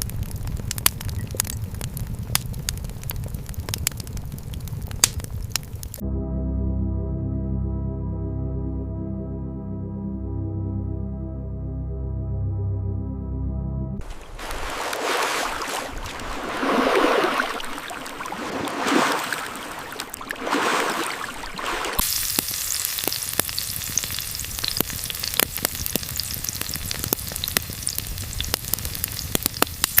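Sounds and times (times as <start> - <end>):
sharp crackling pops: 0.0 - 6.0, 22.0 - 30.0
food sizzling in a pan: 22.0 - 30.0.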